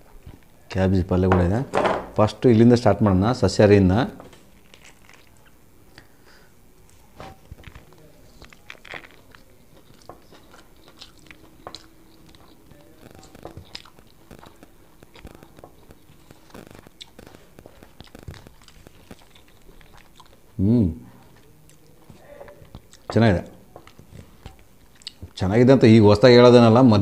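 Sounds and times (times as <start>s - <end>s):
man chewing and lip-smacking: 4.6s - 6.1s, 7.5s - 25.4s.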